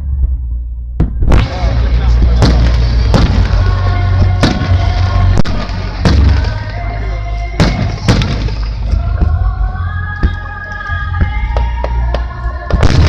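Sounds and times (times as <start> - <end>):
music playing: 0.0 - 13.0
fireworks bursting with bangs: 1.0 - 6.8, 7.6 - 8.9, 12.7 - 13.0.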